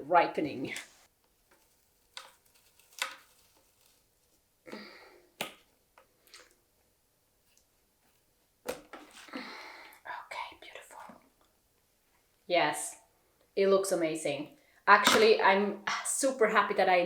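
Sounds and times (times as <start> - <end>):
soap bar scraping: 0.9 - 4.1.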